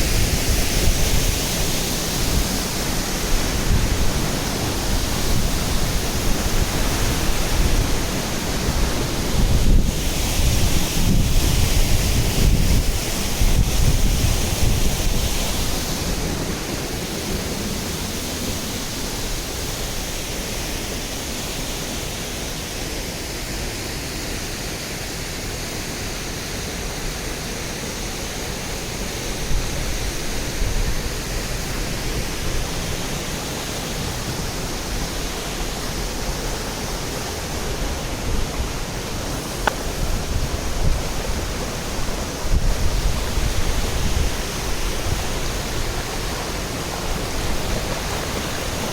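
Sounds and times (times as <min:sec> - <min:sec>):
wind buffeting microphone: 0:00.0 - 0:19.3, 0:29.3 - 0:48.9
waterfall rushing: 0:00.0 - 0:48.9.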